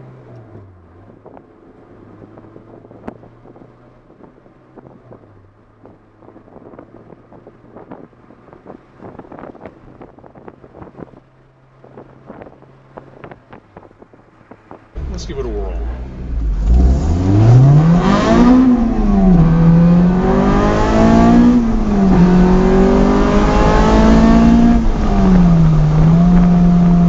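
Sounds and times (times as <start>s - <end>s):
car engine droning: 0.0s - 27.0s.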